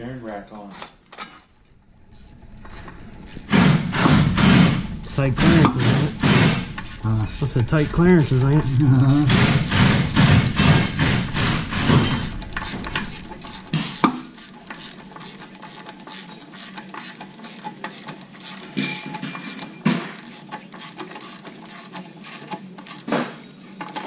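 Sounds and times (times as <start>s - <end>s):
socket wrench clicking: 2.1s - 4.2s.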